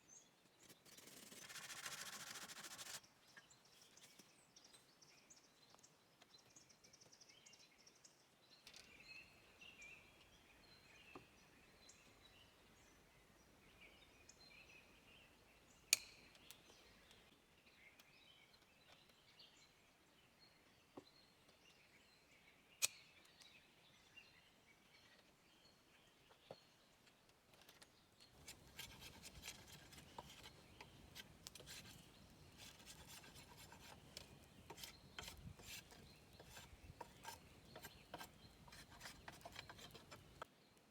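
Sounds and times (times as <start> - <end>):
faint birdsong: 0.0 - 40.9
rapid rasping scrape: 0.8 - 3.0, 28.4 - 40.4.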